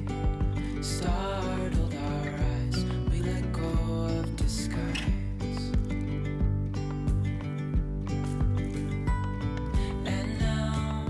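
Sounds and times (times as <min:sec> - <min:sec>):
person singing: 0:00.0 - 0:06.0, 0:09.6 - 0:11.0
pop music with guitar: 0:00.0 - 0:11.0.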